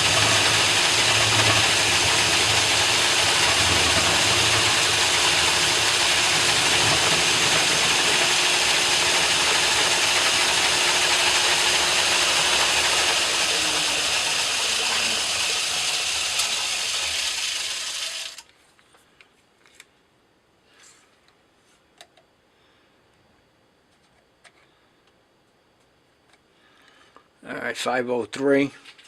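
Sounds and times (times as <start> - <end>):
metal lathe whirring: 0.0 - 18.4.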